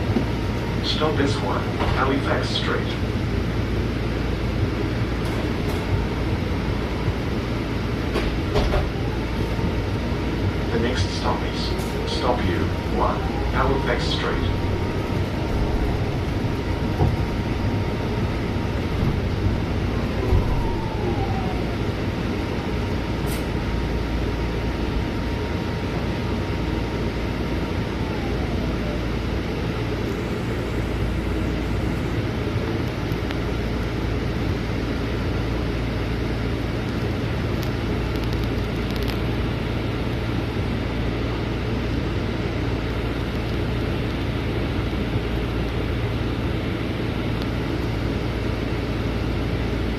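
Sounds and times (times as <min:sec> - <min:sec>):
bus engine and road rumble: 0:00.0 - 0:49.9
faint high whine: 0:10.2 - 0:25.6.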